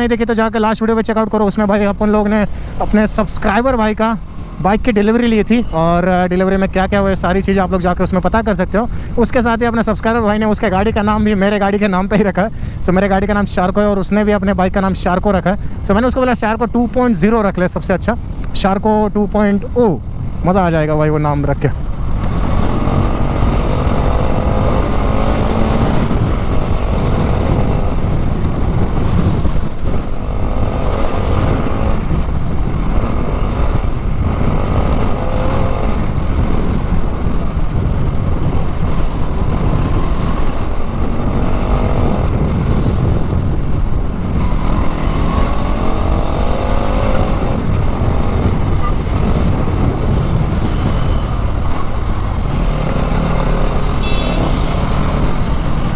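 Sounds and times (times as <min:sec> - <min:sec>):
wind rush on microphone: 0:00.0 - 0:55.9
motorcycle engine revving: 0:22.0 - 0:55.9.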